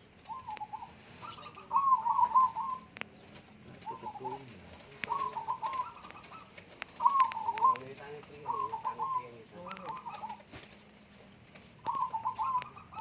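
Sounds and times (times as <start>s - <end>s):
doves cooing: 0.0s - 13.0s
sharp clicks: 4.7s - 8.4s, 9.6s - 10.3s.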